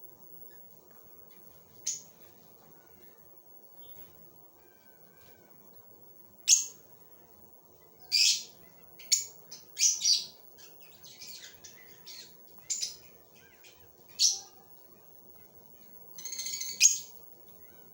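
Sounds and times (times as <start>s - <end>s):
lovebird chirping: 7.9s - 15.6s, 16.2s - 17.9s.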